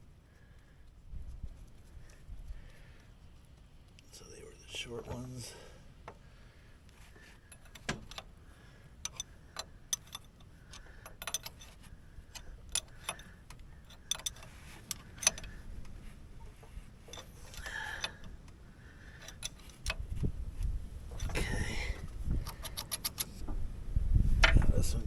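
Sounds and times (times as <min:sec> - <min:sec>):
metallic clicks and clinks: 0:09.0 - 0:16.0, 0:22.4 - 0:23.4.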